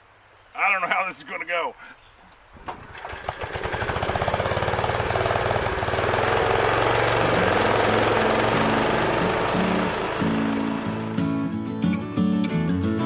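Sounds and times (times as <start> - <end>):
sawmill engine starting up: 2.5 - 11.5.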